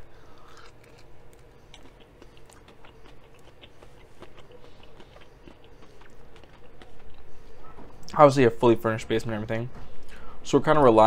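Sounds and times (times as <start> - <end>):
crunchy chewing: 0.2 - 8.1
wet mouth clicks: 1.8 - 7.2.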